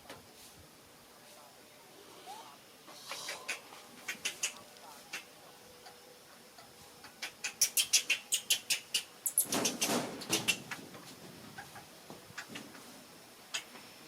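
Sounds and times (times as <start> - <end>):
baby monkey squeaking: 7.4 - 10.7.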